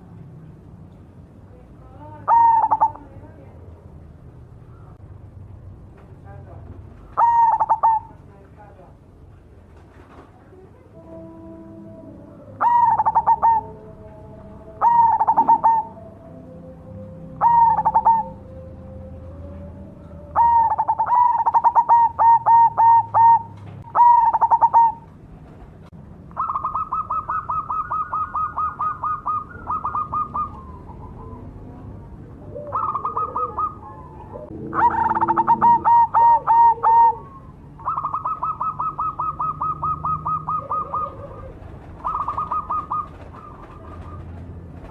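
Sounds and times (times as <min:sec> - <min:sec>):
dove cooing: 0:02.1 - 0:03.2, 0:07.0 - 0:08.2, 0:10.7 - 0:25.6, 0:26.3 - 0:44.9.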